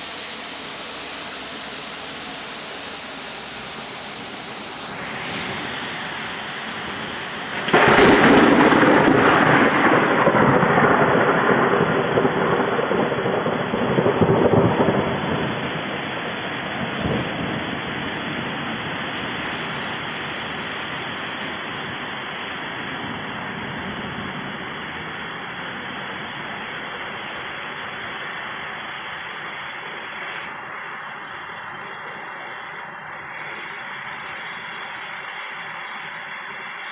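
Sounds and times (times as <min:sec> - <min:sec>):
heavy rain pouring: 0:00.0 - 0:36.9
thunder rumbling: 0:04.6 - 0:35.3.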